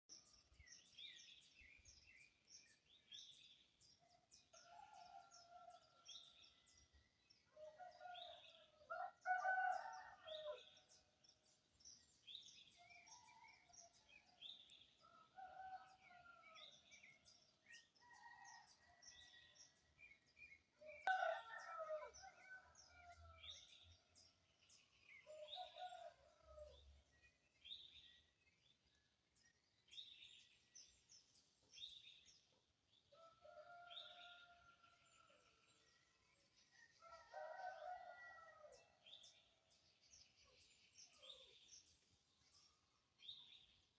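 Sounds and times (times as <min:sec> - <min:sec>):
small birds chirping: 0:00.0 - 0:08.7, 0:09.9 - 0:34.2
distant roosters crowing: 0:07.6 - 0:10.8, 0:21.0 - 0:23.5, 0:33.2 - 0:35.0, 0:37.0 - 0:39.0.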